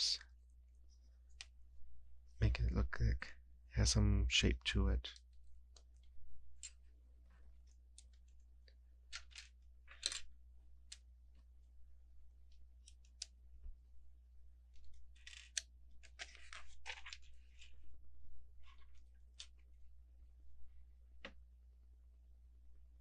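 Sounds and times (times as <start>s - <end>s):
plastic bricks clicking: 9.1s - 10.3s.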